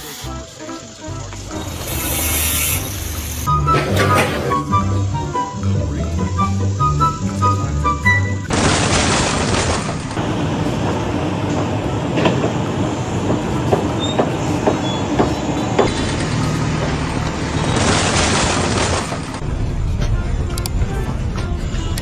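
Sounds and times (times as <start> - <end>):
mechanical rumble: 1.2 - 22.0.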